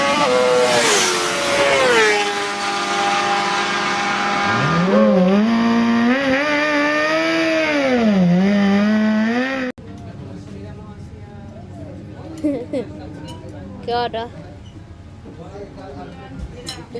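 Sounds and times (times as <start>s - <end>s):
engine revving: 0.0s - 9.7s.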